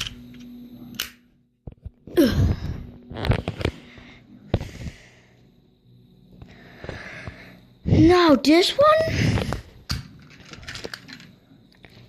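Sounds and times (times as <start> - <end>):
toy cars clicking and knocking: 9.9 - 12.0.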